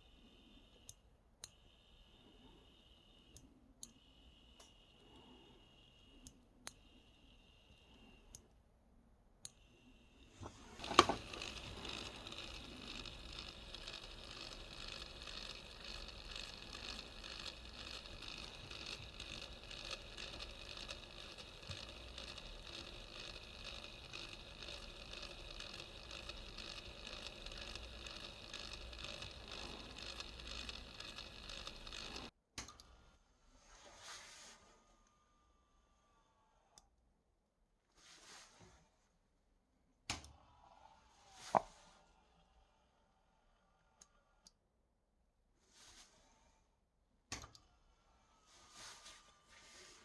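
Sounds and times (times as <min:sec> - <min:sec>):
faint clicks: 0:00.1 - 0:08.6, 0:09.4 - 0:32.9.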